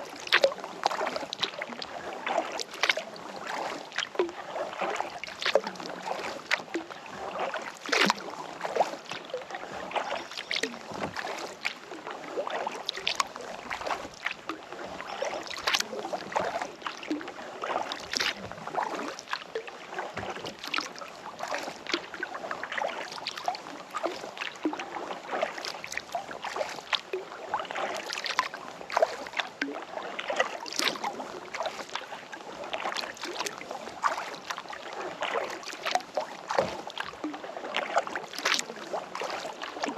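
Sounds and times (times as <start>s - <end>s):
kayak paddle dipping into water: 0.0s - 39.9s
water splashing: 0.0s - 39.9s.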